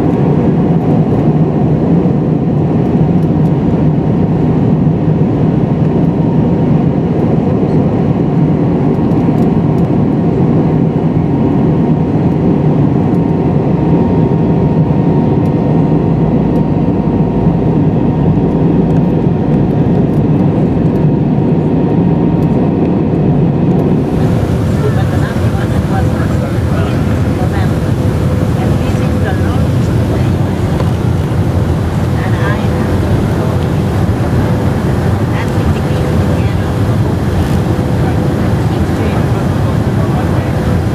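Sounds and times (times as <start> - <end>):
air rushing in airliner cabin: 0.0 - 40.9
jet engine hum: 0.0 - 40.9
faint steady whine: 23.8 - 40.9.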